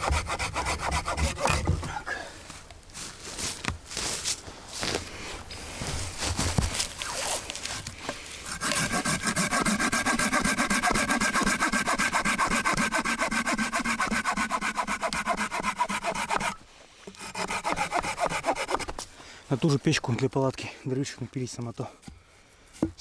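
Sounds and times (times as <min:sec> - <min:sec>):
hand saw sawing wood: 0:00.0 - 0:02.0, 0:08.4 - 0:19.1
rustling and knocking: 0:05.8 - 0:07.1.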